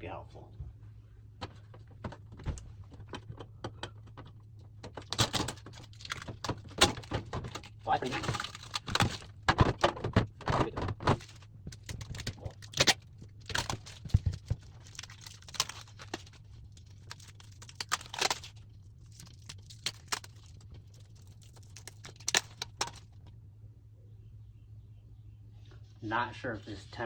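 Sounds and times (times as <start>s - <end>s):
steady low hum: 0.0s - 27.0s
plastic packaging clicks and rustles: 2.1s - 23.3s.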